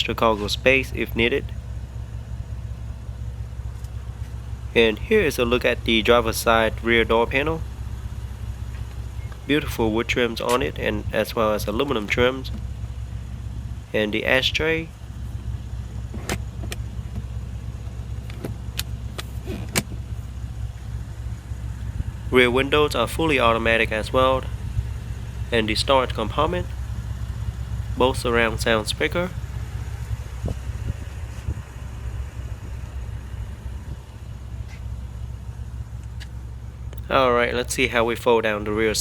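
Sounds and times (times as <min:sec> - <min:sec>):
idling engine hum: 0:00.0 - 0:39.0.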